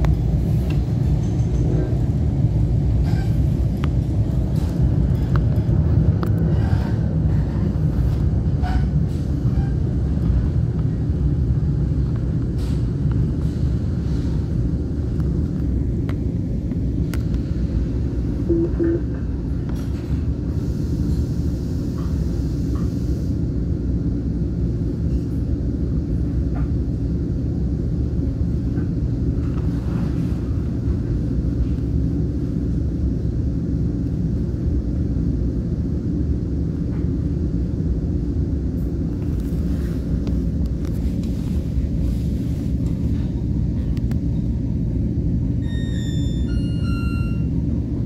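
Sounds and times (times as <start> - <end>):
train coach rumble: 0.0 - 48.0
pair of short tones: 18.5 - 19.1.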